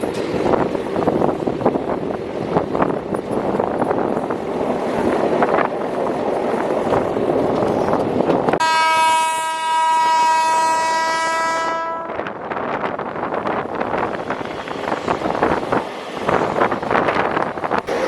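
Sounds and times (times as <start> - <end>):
train rumble and rattle: 0.0 - 18.0
train horn blast: 8.6 - 12.3.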